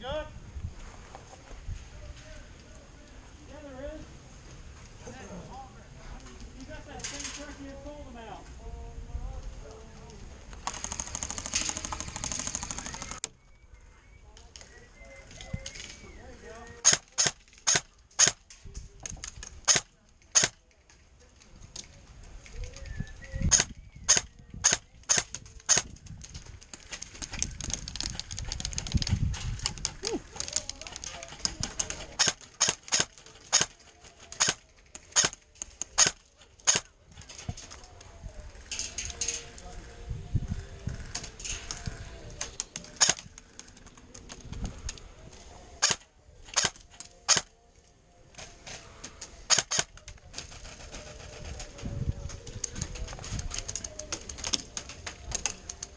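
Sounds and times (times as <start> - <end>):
airsoft gun shots: 16.8 - 18.4, 19.6 - 20.6, 23.5 - 25.9, 36.0 - 36.9, 45.8 - 47.5, 49.5 - 49.9
faint clicks of shots: 16.8 - 26.1, 26.7 - 38.0, 41.0 - 45.0, 45.8 - 47.5, 48.4 - 51.6.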